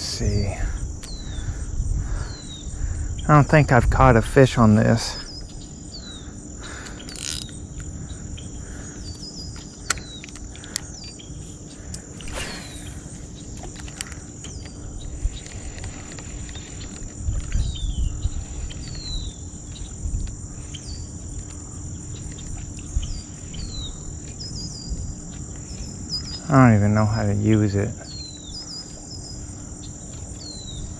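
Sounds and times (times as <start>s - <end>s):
low rumble gusts: 0.0s - 28.0s
insect chorus drone: 0.0s - 30.9s
sharp clicks: 6.8s - 7.9s, 9.1s - 11.2s
short falling chirps: 12.2s - 13.3s.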